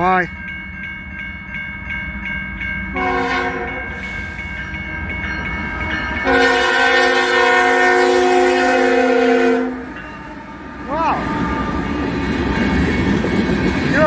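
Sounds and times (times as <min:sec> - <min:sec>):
train rumble: 0:00.0 - 0:14.0
locomotive air horn blasts: 0:02.9 - 0:04.4, 0:06.2 - 0:10.6.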